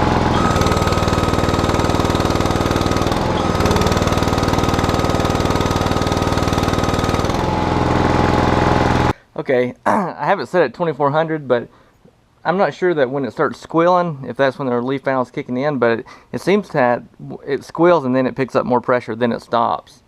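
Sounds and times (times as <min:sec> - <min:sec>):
backhoe engine running: 0:00.0 - 0:09.1.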